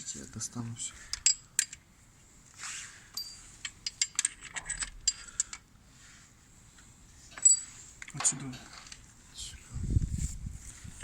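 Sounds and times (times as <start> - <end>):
metal bolts and nuts clinking: 3.1 - 5.6, 7.3 - 9.0
metal parts scraping: 3.2 - 5.6.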